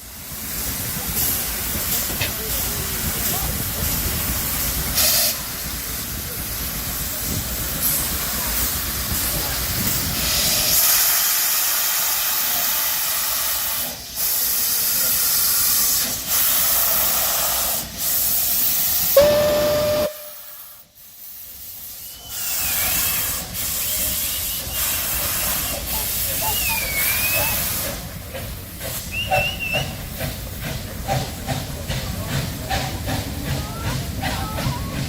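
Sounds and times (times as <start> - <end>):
steam locomotive hissing: 0.0 - 35.0
steam whistle blast: 19.1 - 20.8.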